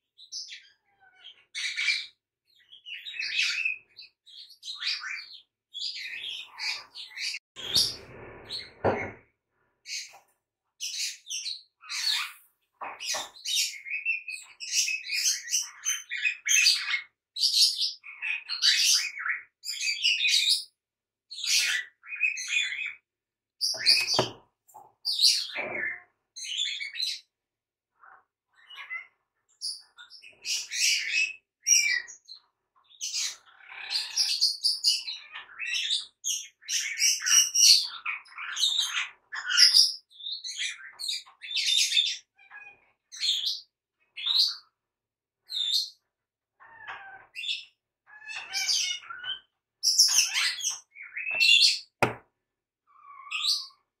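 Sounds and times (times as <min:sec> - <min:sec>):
songbird chirping and singing: 0:00.0 - 0:09.2, 0:09.9 - 0:23.0, 0:23.6 - 0:24.4, 0:25.0 - 0:27.4, 0:28.0 - 0:44.8, 0:45.4 - 0:52.0, 0:52.9 - 0:53.9
sharp knock: 0:23.8 - 0:24.4, 0:52.0 - 0:52.2.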